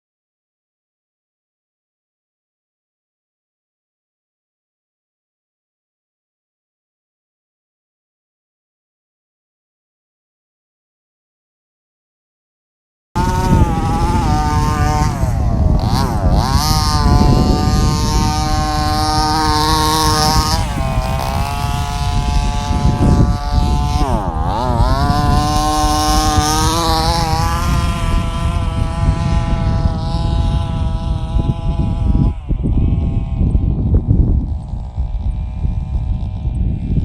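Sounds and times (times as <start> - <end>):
dirt noise: 13.2 - 32.3
toy truck motor whining: 13.2 - 33.5
rumbling wind: 13.2 - 37.0.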